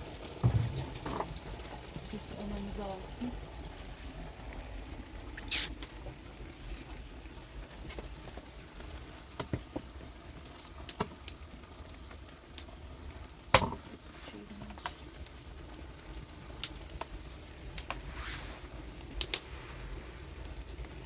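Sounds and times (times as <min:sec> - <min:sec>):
sharp loud knock: 0:00.4 - 0:01.4
light taps and knocks: 0:00.4 - 0:01.6
low steady rumble: 0:00.4 - 0:05.3.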